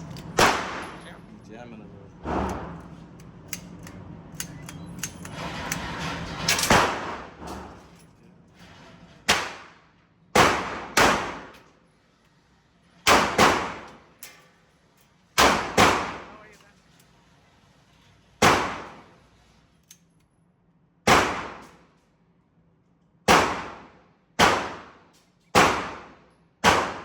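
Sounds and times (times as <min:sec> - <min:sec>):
gunshots: 0:00.4 - 0:01.0, 0:06.7 - 0:07.4, 0:09.3 - 0:09.8, 0:10.4 - 0:11.5, 0:13.1 - 0:13.9, 0:15.4 - 0:16.4, 0:18.4 - 0:19.1, 0:21.1 - 0:21.7, 0:23.3 - 0:25.0, 0:25.6 - 0:27.0.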